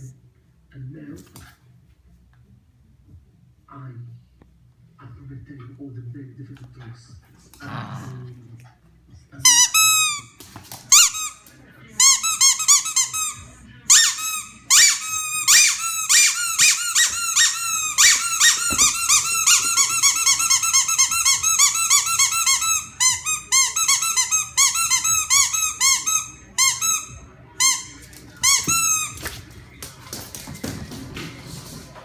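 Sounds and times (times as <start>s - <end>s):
squeaky rubber toy squeaking: 9.4s - 11.4s, 12.0s - 29.2s.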